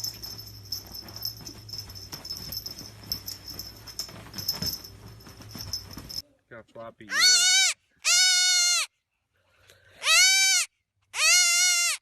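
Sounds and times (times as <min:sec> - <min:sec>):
steady low hum: 0:00.0 - 0:06.5.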